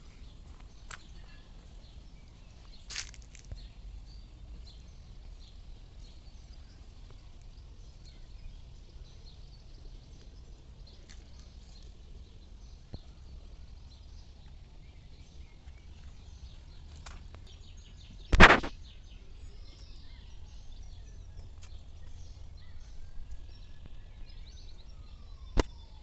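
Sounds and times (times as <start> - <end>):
faint bird chirps: 0.0 - 26.0
steady low rumble: 3.6 - 26.0
sharp click: 18.3 - 18.8.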